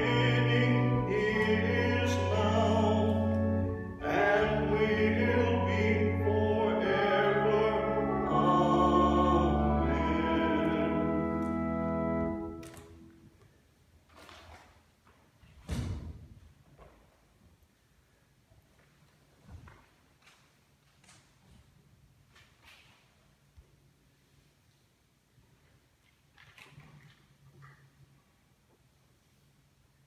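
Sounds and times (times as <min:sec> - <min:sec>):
voices singing a hymn: 0:00.0 - 0:12.7
organ chords: 0:00.0 - 0:13.2.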